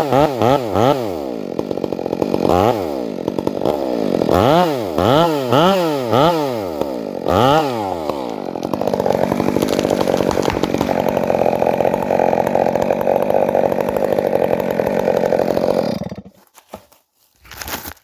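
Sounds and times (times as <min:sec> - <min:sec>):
chainsaw revving: 0:00.0 - 0:16.4.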